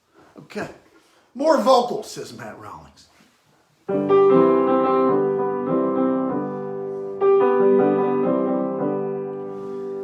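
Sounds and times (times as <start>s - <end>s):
piano playing held chords: 3.9s - 10.0s.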